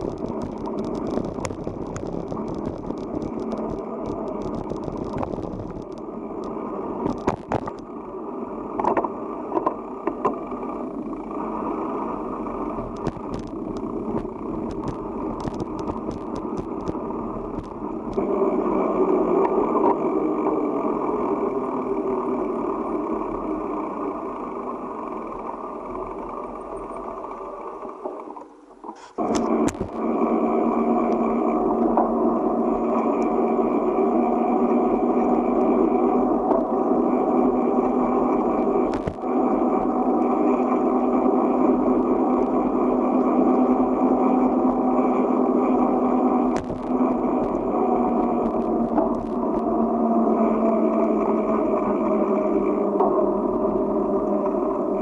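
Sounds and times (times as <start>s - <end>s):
wind noise: 0.0s - 7.8s, 12.8s - 18.4s, 29.3s - 30.2s, 38.8s - 39.3s
bicycle clicks and rattles: 0.0s - 7.9s, 12.8s - 18.2s, 28.9s - 30.0s, 38.8s - 39.3s
bicycle tyre noise: 0.0s - 28.0s, 29.0s - 55.0s.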